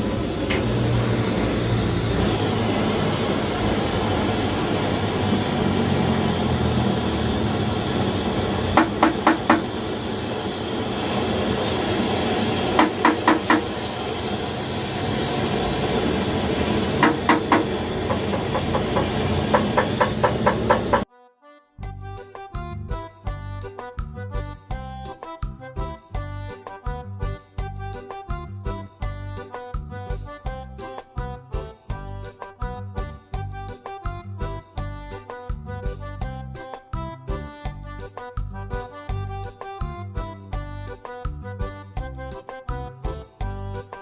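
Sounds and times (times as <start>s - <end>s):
hammer tapping on metal: 8.8s - 9.7s, 12.8s - 13.7s, 17.0s - 21.0s.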